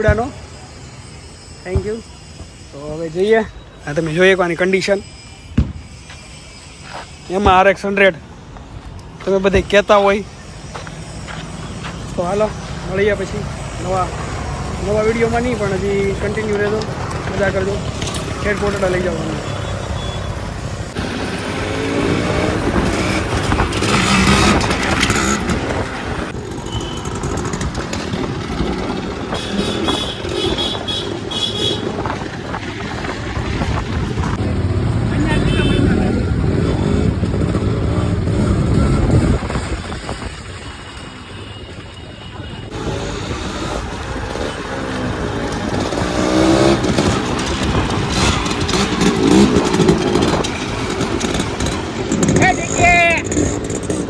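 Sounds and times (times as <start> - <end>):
motorcycle engine rumble: 8.6 - 54.0
wind rushing on microphone: 20.4 - 44.5.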